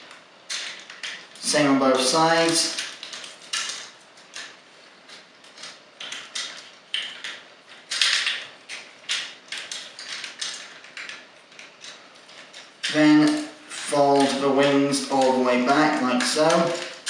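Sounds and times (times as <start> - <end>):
plastic toy parts clicking: 5.1 - 14.4.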